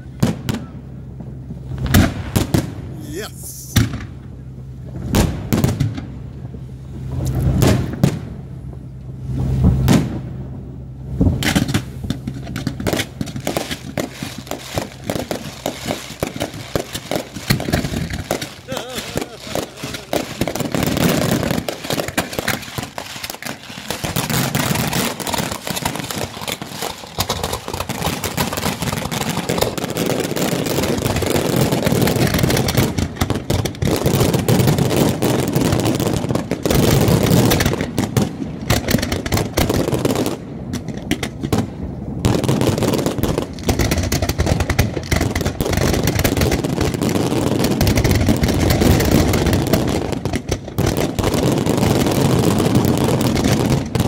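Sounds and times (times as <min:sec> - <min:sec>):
fireworks bursting and crackling: 0:00.0 - 0:10.5, 0:11.2 - 0:54.0
low rumble of booms: 0:03.8 - 0:22.2.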